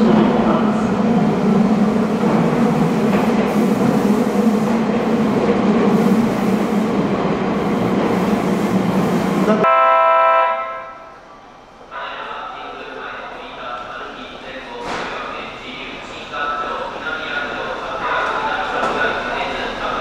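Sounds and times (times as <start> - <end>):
electric train rumble and hum: 0.0 - 20.0
short horn-like tone: 9.6 - 11.1.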